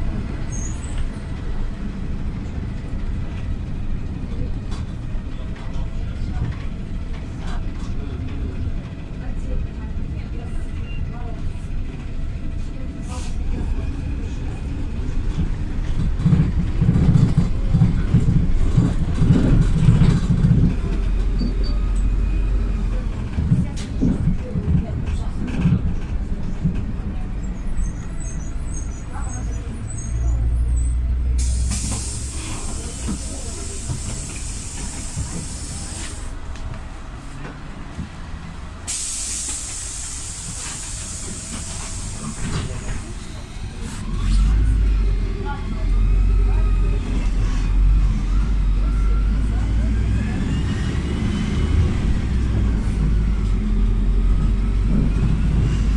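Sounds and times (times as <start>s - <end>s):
bus engine droning: 0.0s - 55.9s
road and body noise: 11.8s - 55.9s.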